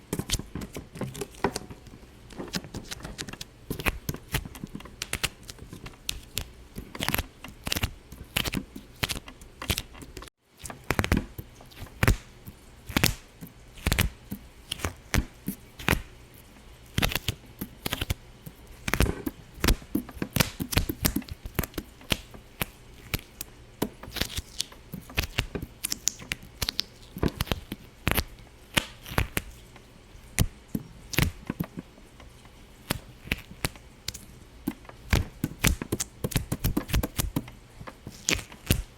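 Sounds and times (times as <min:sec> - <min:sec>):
rapid sharp pops and clicks: 0:34.7 - 0:38.9.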